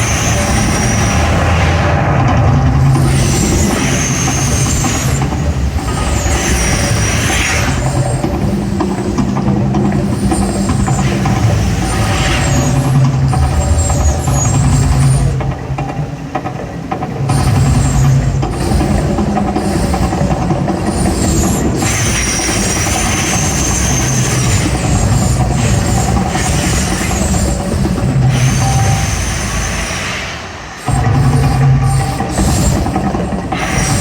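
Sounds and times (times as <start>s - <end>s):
low rumble: 0.0s - 8.5s
gas flame blasts: 0.0s - 15.6s, 17.2s - 34.0s.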